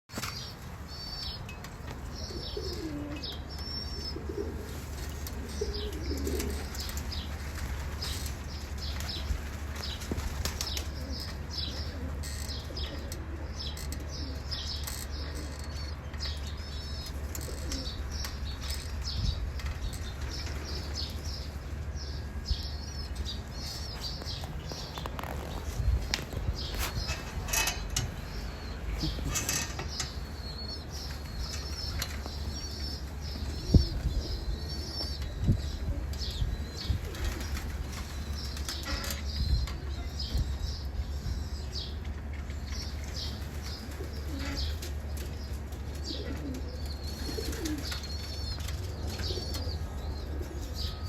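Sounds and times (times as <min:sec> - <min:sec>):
low wavering coo calls: 0:02.3 - 0:06.9
steady low rumble: 0:16.0 - 0:38.5.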